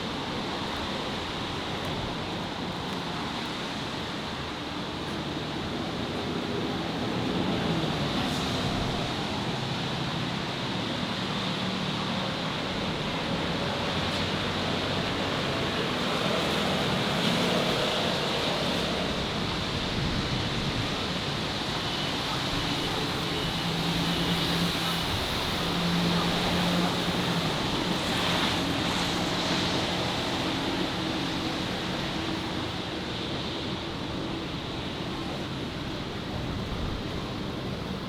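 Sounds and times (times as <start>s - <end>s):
city street traffic roar: 0.0s - 38.0s
passing engines humming: 0.0s - 38.0s.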